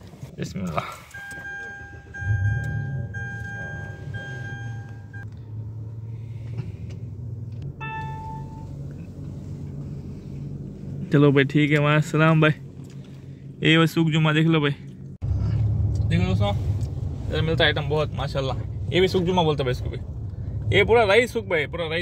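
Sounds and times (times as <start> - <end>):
car engine starting and running: 0.0 - 22.0
electronic beep: 1.2 - 5.2, 7.8 - 8.6.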